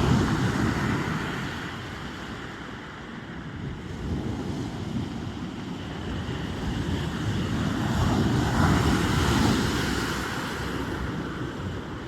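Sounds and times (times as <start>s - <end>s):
steady surf rumble: 0.0s - 12.0s
wind buffeting microphone: 3.3s - 12.0s.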